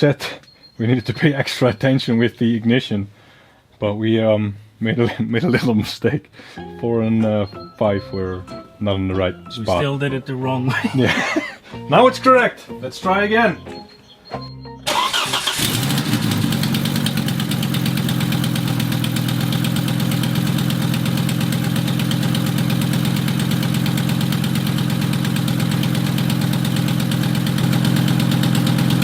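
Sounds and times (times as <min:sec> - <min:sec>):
car engine cranking and idling: 0:14.8 - 0:29.0.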